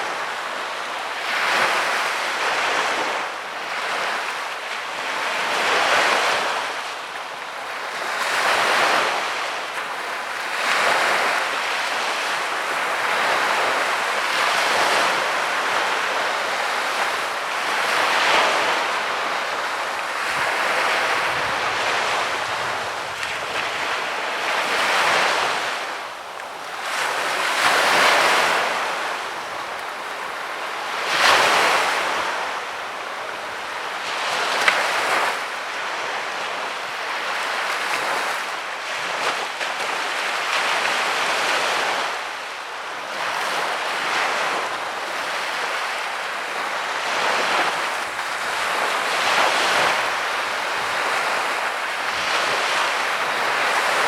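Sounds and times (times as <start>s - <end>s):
waves breaking on sandy beach: 0.0s - 54.0s.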